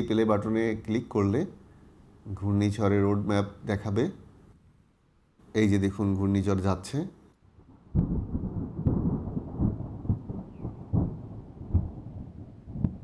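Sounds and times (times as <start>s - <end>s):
rumbling thunder with crackles: 7.6s - 13.0s.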